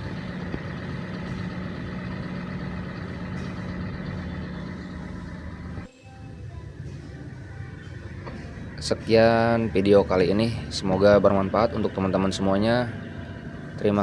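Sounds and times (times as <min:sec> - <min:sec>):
car engine running smoothly: 0:00.0 - 0:05.9, 0:06.6 - 0:14.0.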